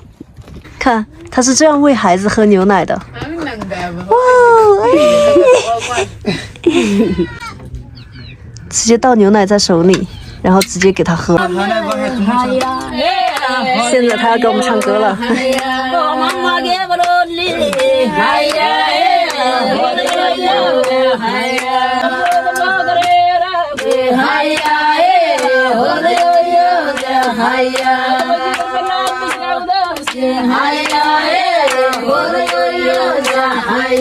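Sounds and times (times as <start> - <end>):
chant-like singing: 11.3 - 34.0.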